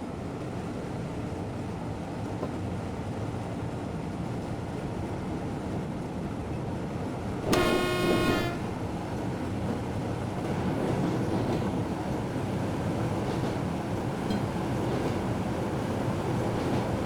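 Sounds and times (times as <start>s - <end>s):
train rumbling along track: 0.0s - 17.0s
train horn blast: 7.4s - 9.1s.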